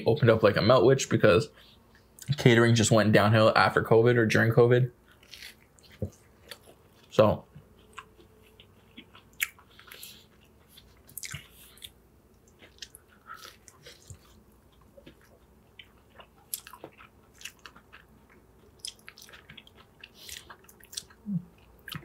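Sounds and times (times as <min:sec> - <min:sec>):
chewing crunchy sandwich: 0:05.0 - 0:22.0.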